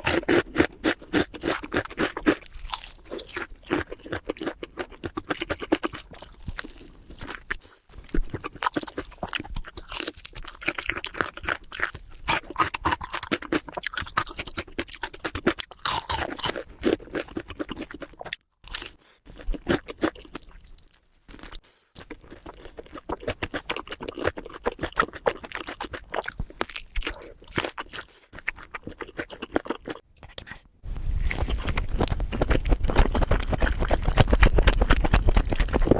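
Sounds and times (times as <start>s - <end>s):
crisp crunching and chewing: 0.0s - 30.0s, 30.9s - 35.9s.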